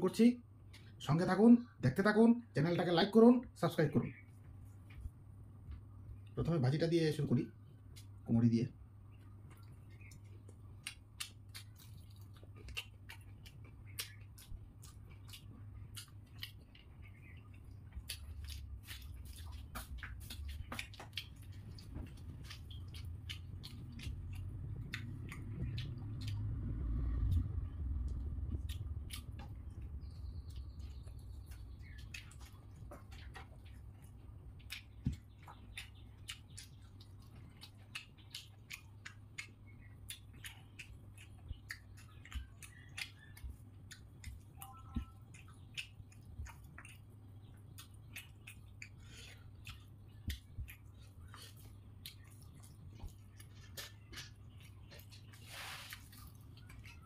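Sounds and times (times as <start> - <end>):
chewing with wet mouth clicks: 7.8 - 8.2, 9.1 - 57.0
dull low rumble: 18.0 - 35.5.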